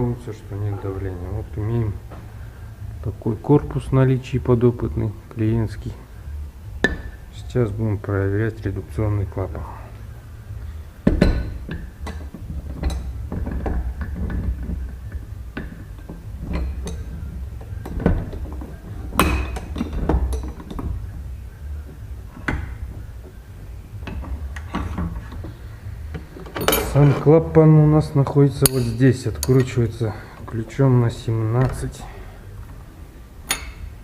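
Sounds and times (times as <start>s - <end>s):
steady low hum: 0.0s - 34.0s
metal clinks and knocks: 11.0s - 21.1s, 26.1s - 27.2s.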